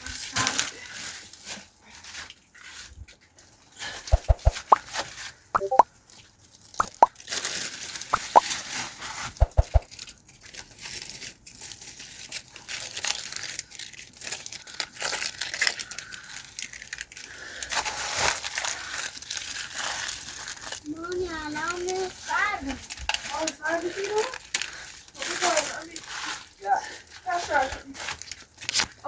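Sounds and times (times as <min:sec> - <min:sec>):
material rustling and crinkling: 0:17.7 - 0:29.0.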